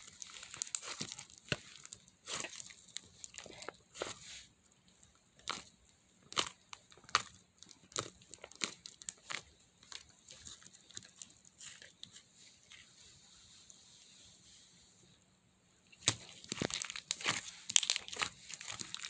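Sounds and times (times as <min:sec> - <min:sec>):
slime crackling: 0:00.0 - 0:04.2, 0:06.3 - 0:12.3, 0:16.0 - 0:19.0.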